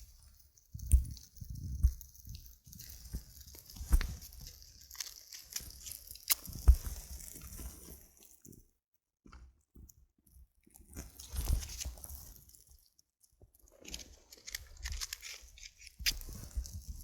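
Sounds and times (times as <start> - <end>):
tinder crackling and snapping: 0.8 - 7.5, 13.8 - 17.0.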